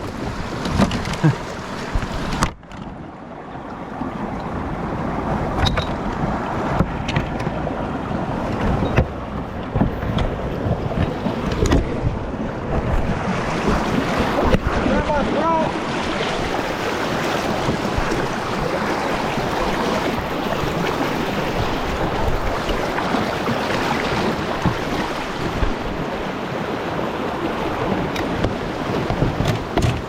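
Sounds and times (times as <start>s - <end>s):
rushing river water: 0.0s - 30.0s
wind buffeting microphone: 3.9s - 26.3s.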